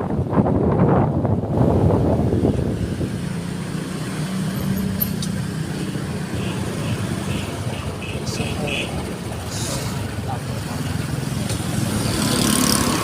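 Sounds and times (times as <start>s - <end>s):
road noise: 0.0s - 13.0s
vehicle engine humming: 1.5s - 13.0s.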